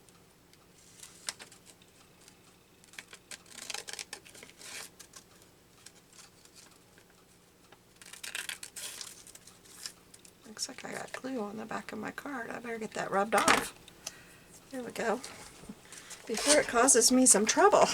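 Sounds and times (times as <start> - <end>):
paper rustling and crinkling: 0.8 - 7.2, 8.0 - 10.3, 15.2 - 17.0.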